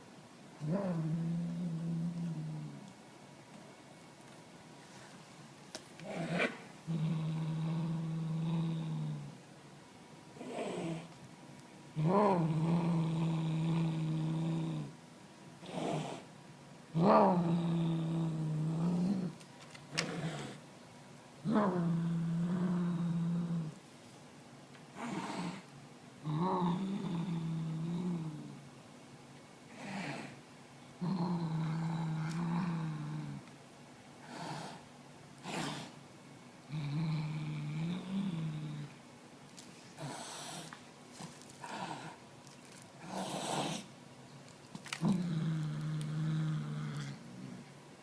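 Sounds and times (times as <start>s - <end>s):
cat growling: 0.6s - 2.9s, 6.0s - 9.4s, 10.4s - 11.2s, 12.0s - 15.0s, 16.9s - 20.6s, 21.4s - 23.8s, 25.0s - 28.6s, 29.7s - 30.4s, 31.0s - 33.5s, 35.4s - 36.0s, 36.6s - 39.0s, 39.9s - 40.8s, 41.6s - 42.2s, 43.0s - 43.9s, 44.8s - 47.7s.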